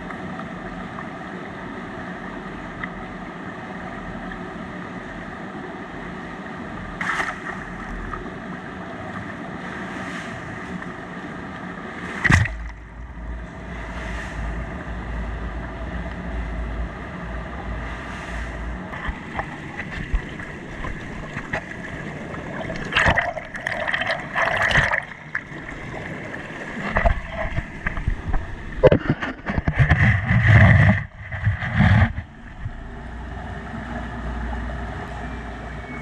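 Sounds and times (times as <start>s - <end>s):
running water: 18.4s - 35.8s
rustling and knocks: 26.8s - 32.3s.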